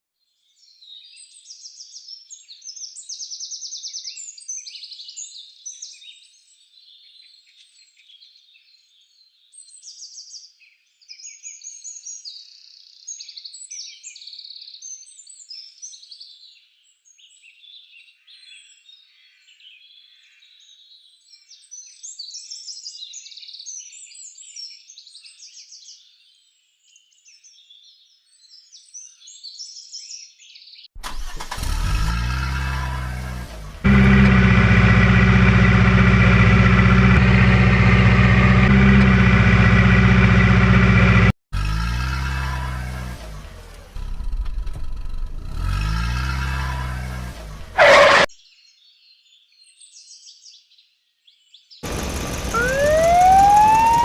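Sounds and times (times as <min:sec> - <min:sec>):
small birds chirping chorus: 0:00.2 - 0:31.6, 0:48.3 - 0:54.0.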